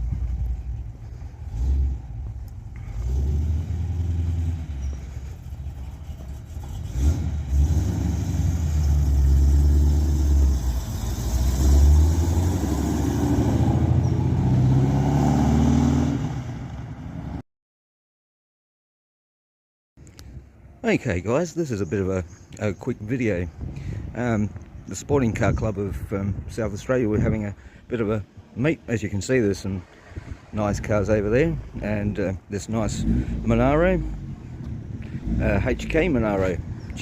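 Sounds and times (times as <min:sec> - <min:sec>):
car engine revving: 0:00.0 - 0:17.4, 0:32.8 - 0:37.0.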